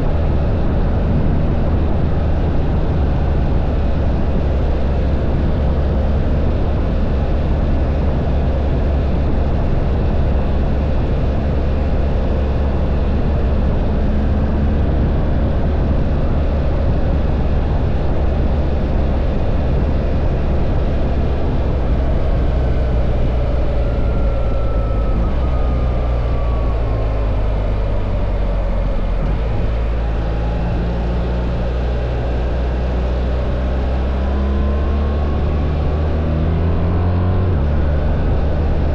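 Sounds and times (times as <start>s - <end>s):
motorcycle engine cruising: 0.0s - 38.9s
wind noise on microphone: 0.0s - 38.9s.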